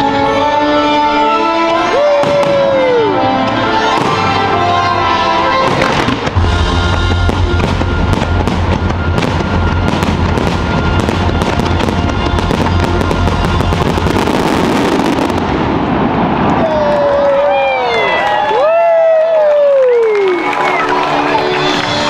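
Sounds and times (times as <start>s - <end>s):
show music: 0.0s - 15.7s, 20.0s - 22.0s
fireworks bangs and crackles: 2.0s - 4.7s, 5.5s - 17.4s
deep rumble: 6.1s - 17.0s.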